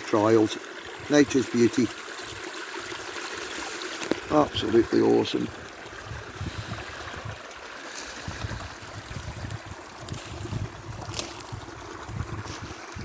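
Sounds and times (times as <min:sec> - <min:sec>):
steady outdoor hiss: 0:00.0 - 0:13.0
wind buffeting microphone: 0:05.5 - 0:13.0.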